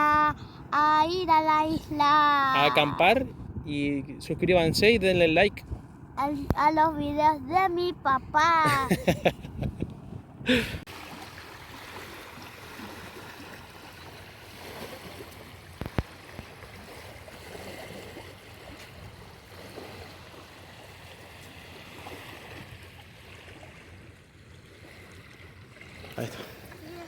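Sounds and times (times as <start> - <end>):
water sloshing around kayak: 10.8 - 27.0.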